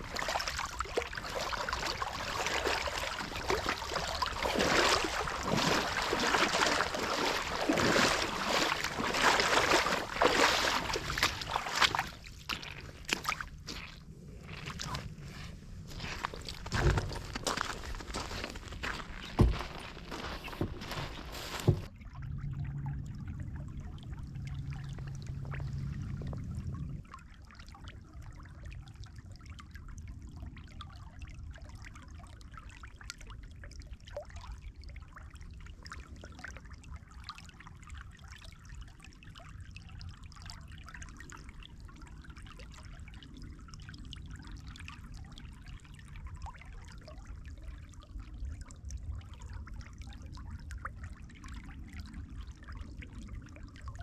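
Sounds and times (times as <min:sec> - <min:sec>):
low hum: 0:00.0 - 0:27.6
water trickling and flowing: 0:00.0 - 0:54.0.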